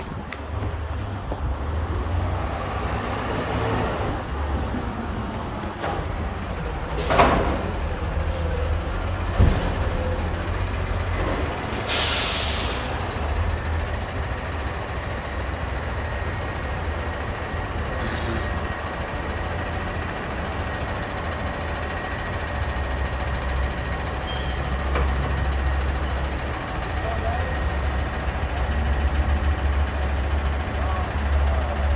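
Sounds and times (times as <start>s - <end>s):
garbage truck engine running: 0.0s - 31.9s
air brake hiss: 11.7s - 13.0s, 18.0s - 18.7s.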